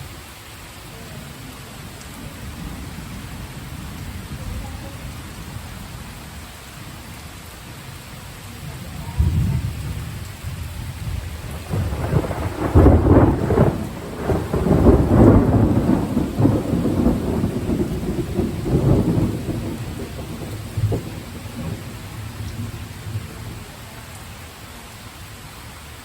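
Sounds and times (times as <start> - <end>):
heavy rain: 0.0 - 26.0
thunder rolling: 8.7 - 23.8.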